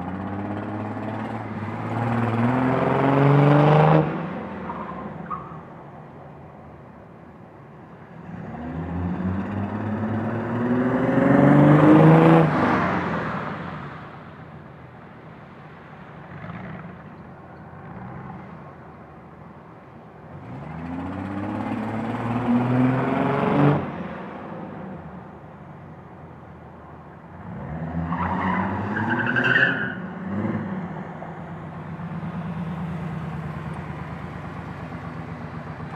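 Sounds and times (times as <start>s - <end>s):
car engine idling and revving: 0.0s - 5.6s, 16.0s - 29.0s, 29.8s - 35.9s.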